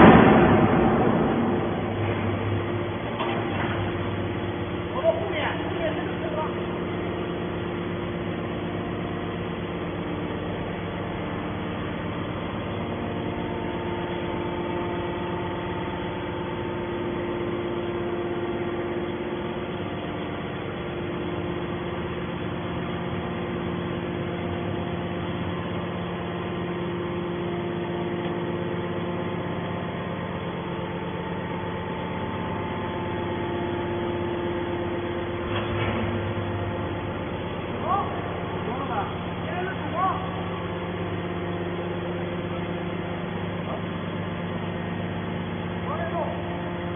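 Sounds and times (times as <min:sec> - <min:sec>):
hydraulic baler humming: 0:00.0 - 0:46.9.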